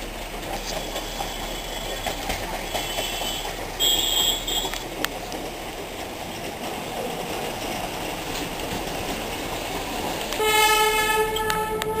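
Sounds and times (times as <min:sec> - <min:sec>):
train rumbling: 0:00.0 - 0:12.0
loud train horn: 0:02.7 - 0:04.8, 0:10.4 - 0:12.0.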